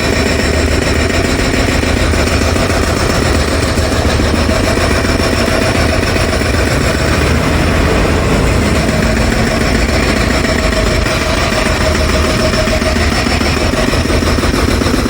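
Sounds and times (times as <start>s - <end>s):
jackhammer hammering: 0.0s - 15.0s.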